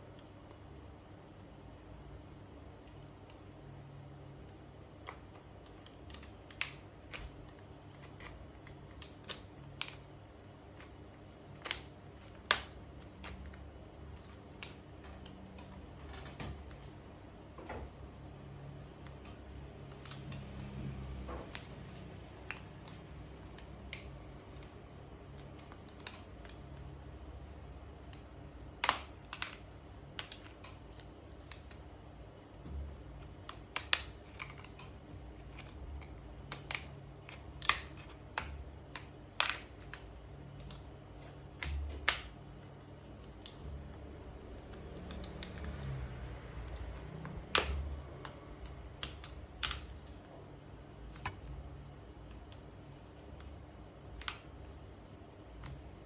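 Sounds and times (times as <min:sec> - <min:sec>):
low steady hum: 0:00.0 - 0:56.0
small tools clicking and tapping: 0:05.0 - 0:10.1, 0:11.6 - 0:17.0, 0:25.4 - 0:26.9, 0:28.1 - 0:29.6, 0:30.2 - 0:31.8, 0:33.2 - 0:42.4, 0:46.6 - 0:50.0.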